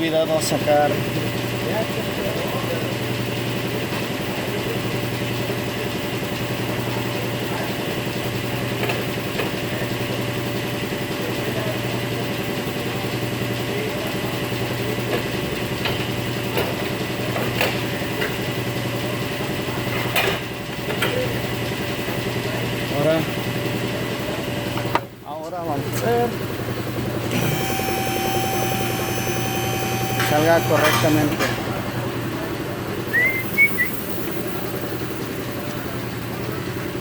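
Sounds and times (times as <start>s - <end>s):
low machine hum: 26.2s - 36.5s.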